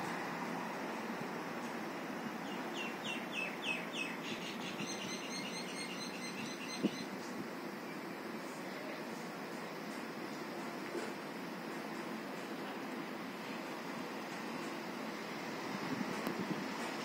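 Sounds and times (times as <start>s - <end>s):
street traffic hum: 0.0s - 17.0s
bird calling: 2.5s - 7.1s.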